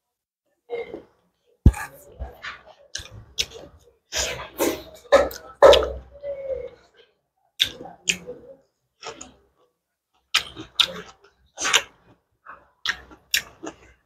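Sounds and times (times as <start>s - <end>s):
chewing: 2.0s - 6.0s, 7.6s - 9.4s, 10.2s - 14.0s.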